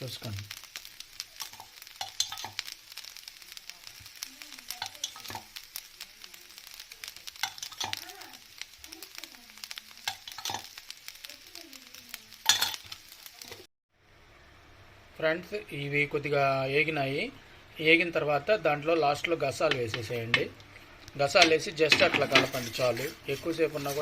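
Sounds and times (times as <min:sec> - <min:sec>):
food sizzling in a pan: 0:00.0 - 0:24.0
spatula scraping a pan: 0:22.0 - 0:24.0.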